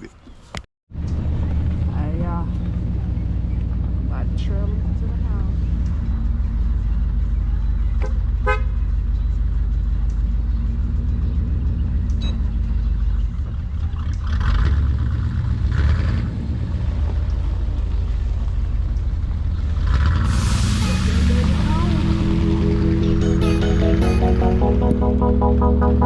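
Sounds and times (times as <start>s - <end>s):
vehicle rumbling on road: 0.9s - 24.0s
brief louder rushes: 20.3s - 26.0s.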